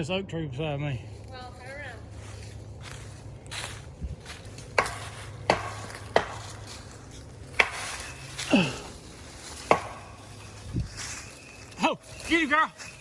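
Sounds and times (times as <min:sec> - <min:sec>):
sharp knocks: 0:04.7 - 0:06.7, 0:07.6 - 0:08.1, 0:09.6 - 0:10.2.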